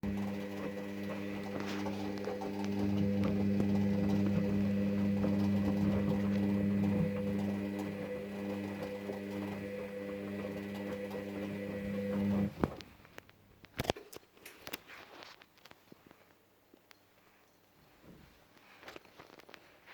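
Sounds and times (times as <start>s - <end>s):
washing machine motor hum: 0.0s - 12.8s.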